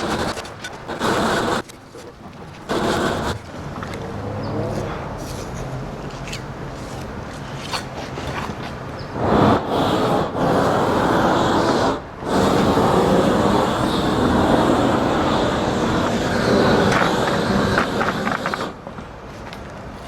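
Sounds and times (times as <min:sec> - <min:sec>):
propane torch burning: 0:00.0 - 0:04.0, 0:09.2 - 0:19.5.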